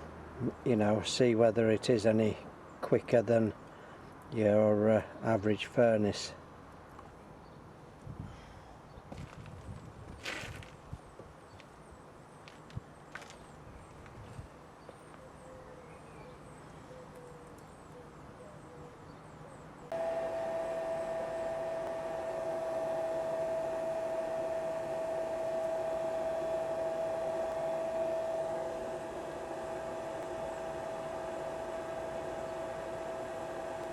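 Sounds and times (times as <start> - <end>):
electric air blower whining: 19.9 - 33.9.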